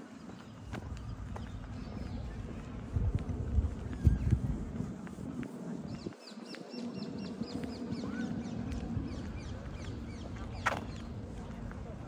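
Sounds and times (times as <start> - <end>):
low outdoor rumble: 7.4 - 12.0.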